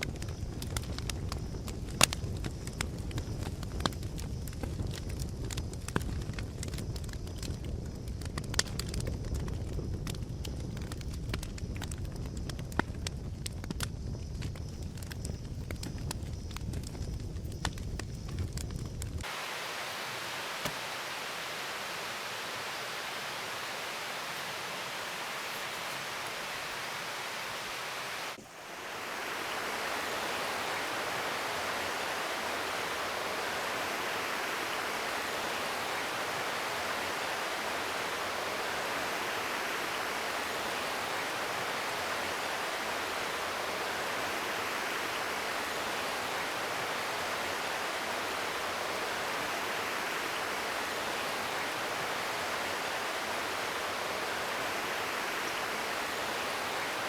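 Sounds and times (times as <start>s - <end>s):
running water rushing: 19.2s - 57.0s.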